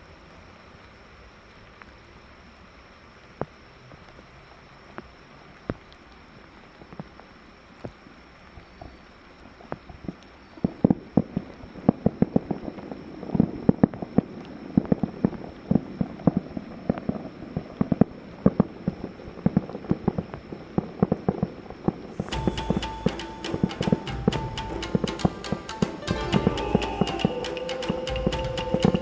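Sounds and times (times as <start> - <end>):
fireworks bursting and crackling: 4.9 - 29.0
music: 22.2 - 29.0.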